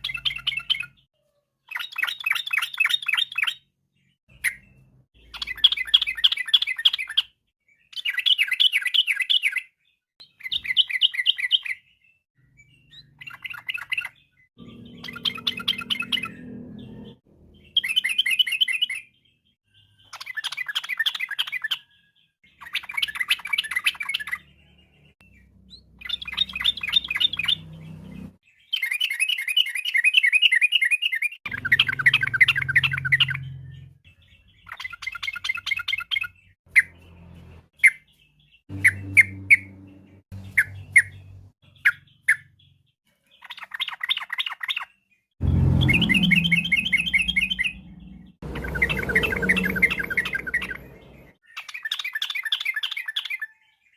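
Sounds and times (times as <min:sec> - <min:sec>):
bulbul chattering trilled song: 0:12.7 - 0:19.1, 0:25.3 - 0:29.0, 0:31.5 - 0:42.5, 0:45.4 - 0:53.0.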